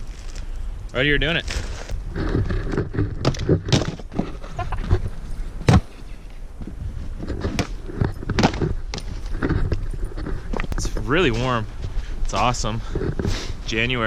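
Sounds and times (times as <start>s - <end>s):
footsteps crunching in deep snow: 1.3s - 2.6s, 5.0s - 14.0s.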